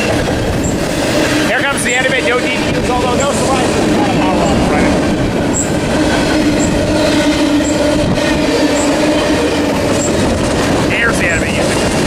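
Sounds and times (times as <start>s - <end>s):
train wheels rumbling on rails: 0.0s - 12.0s
steady ringing tone: 0.6s - 10.2s.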